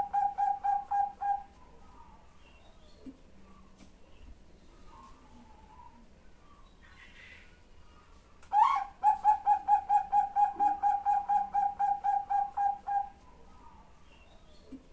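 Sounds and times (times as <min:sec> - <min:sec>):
dove cooing: 0:00.0 - 0:02.3, 0:08.5 - 0:13.9.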